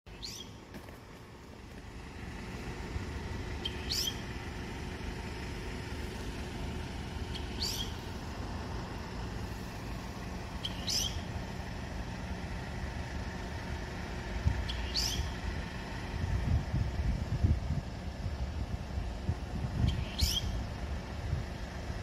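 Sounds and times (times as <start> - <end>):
songbird high call: 0.1 - 0.6, 3.6 - 4.3, 7.3 - 8.1, 10.5 - 11.3, 14.6 - 15.4, 19.8 - 20.7
low background rumble: 0.1 - 22.0.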